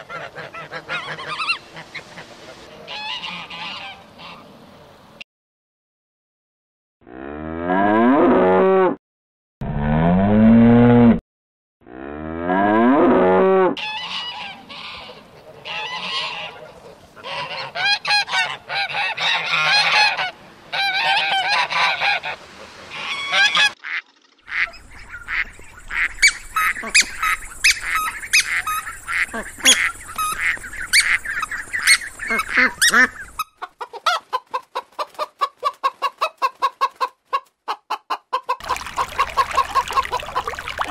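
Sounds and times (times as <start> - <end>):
geese honking: 0.0 - 4.4, 13.8 - 34.2, 38.4 - 40.9
hen clucking: 0.0 - 4.4, 13.8 - 40.9
cow mooing: 7.1 - 9.0, 9.6 - 11.2, 11.8 - 13.8.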